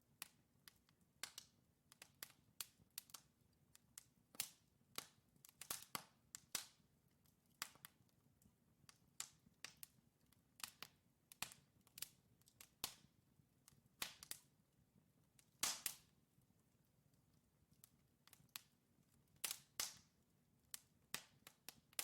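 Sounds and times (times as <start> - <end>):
wood fire crackling and popping: 0.1 - 22.0.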